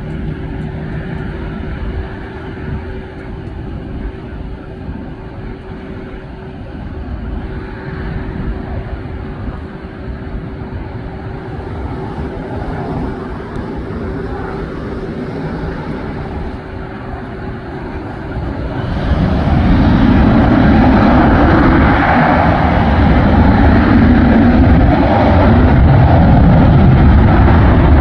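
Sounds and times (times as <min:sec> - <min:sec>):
jet engine roar: 0:00.0 - 0:28.0
faint hum: 0:11.0 - 0:21.7.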